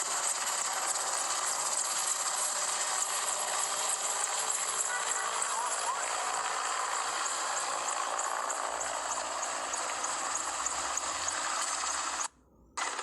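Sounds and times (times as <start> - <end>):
helicopter engine and rotor: 0.0 - 13.0.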